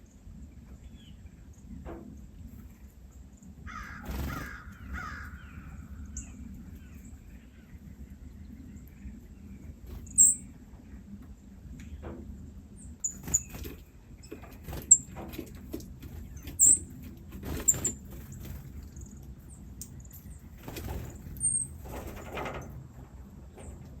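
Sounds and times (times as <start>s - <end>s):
harsh caw-like bird calls: 3.6s - 7.8s
sharp high bird chirp: 10.0s - 10.5s.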